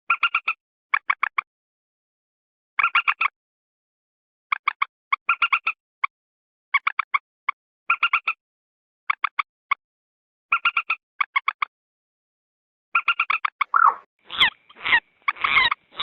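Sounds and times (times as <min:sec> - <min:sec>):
moorhen call notes: 0:13.0 - 0:16.0.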